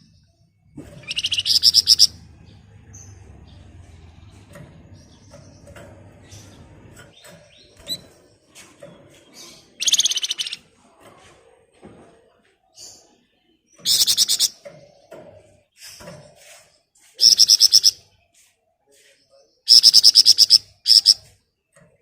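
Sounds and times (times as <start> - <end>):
soft bird chirps: 0.0 - 11.3, 12.3 - 21.8
songbird rapid rattling trill: 1.0 - 2.2, 9.8 - 10.6, 13.8 - 14.5, 17.2 - 18.0, 19.7 - 21.2.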